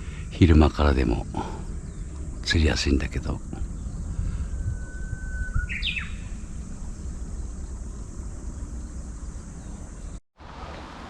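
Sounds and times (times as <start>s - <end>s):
thin high hiss: 0.0s - 10.2s
wind buffeting microphone: 0.0s - 10.2s
bird chirp sweeping down: 3.7s - 10.2s.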